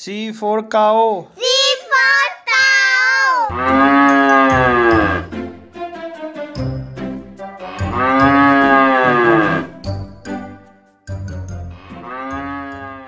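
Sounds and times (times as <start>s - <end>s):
cows mooing: 3.5s - 5.3s, 7.6s - 9.7s, 11.8s - 13.0s.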